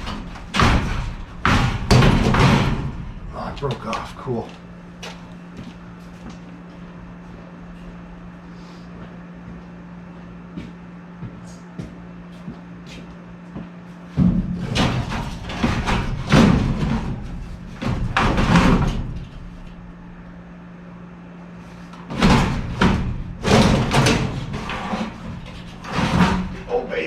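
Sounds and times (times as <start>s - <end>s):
sheet metal scraping and clunking: 0.0s - 4.3s, 14.2s - 20.3s, 21.7s - 27.0s
steady low hum: 0.0s - 27.0s.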